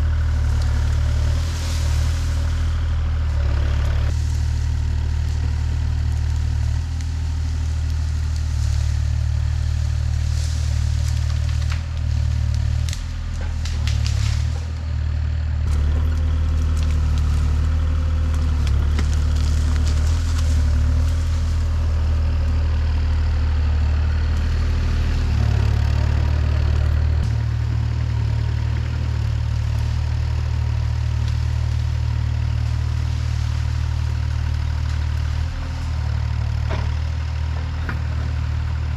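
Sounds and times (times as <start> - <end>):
large engine running: 0.0 - 38.9
cracks and clatter: 4.1 - 14.8, 15.7 - 21.9.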